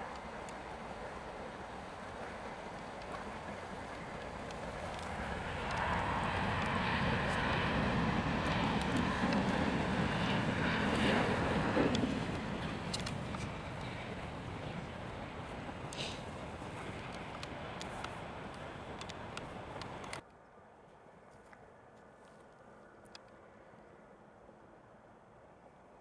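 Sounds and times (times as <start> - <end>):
jet engines rushing: 0.0 - 20.2.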